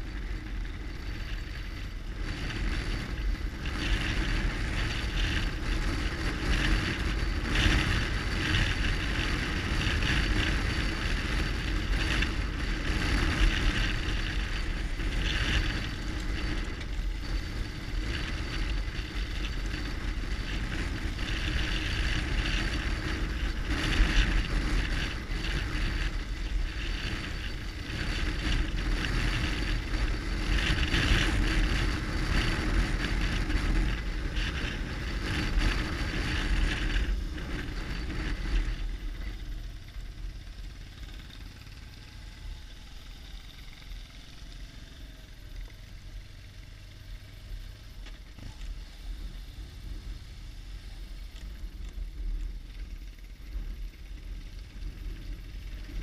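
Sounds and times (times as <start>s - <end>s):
riding noise: 0.0s - 40.7s
motorcycle engine running: 0.0s - 56.0s.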